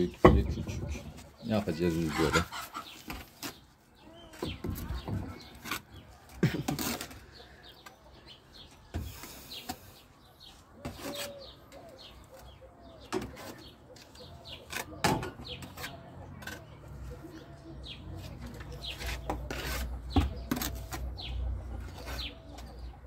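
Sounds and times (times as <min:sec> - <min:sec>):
chickens clucking: 0:00.0 - 0:03.4, 0:09.2 - 0:23.0
small birds chirping: 0:00.0 - 0:23.0.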